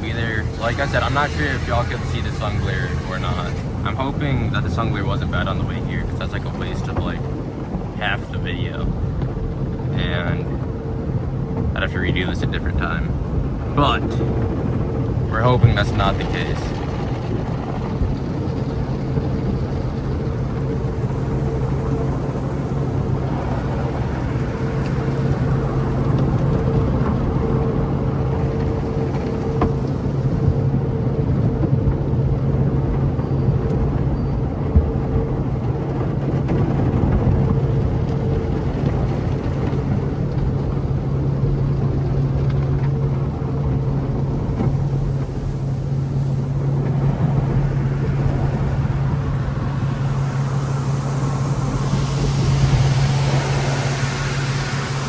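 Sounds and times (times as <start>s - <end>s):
hiss: 0.0s - 5.0s, 45.2s - 55.0s
car engine idling: 0.0s - 30.8s, 34.8s - 55.0s.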